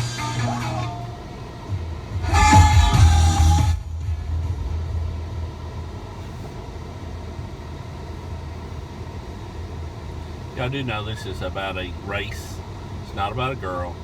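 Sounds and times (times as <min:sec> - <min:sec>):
music: 0:00.0 - 0:01.2, 0:02.1 - 0:05.5
car engine and road rumble: 0:00.0 - 0:14.0.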